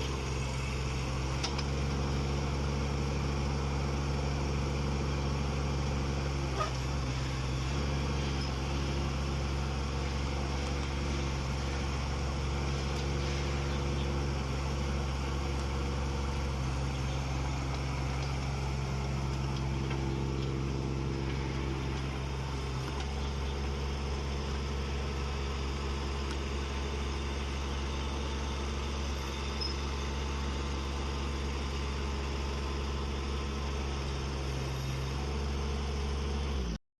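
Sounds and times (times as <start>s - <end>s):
diesel engine running: 0.0s - 36.8s.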